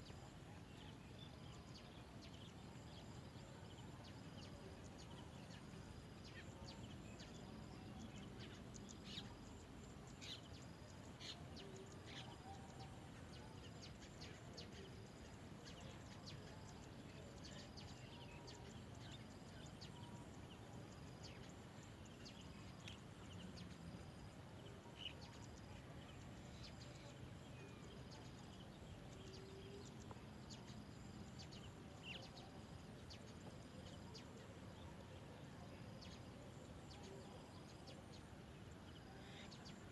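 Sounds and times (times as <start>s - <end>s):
faint outdoor hiss: 0.0s - 39.9s.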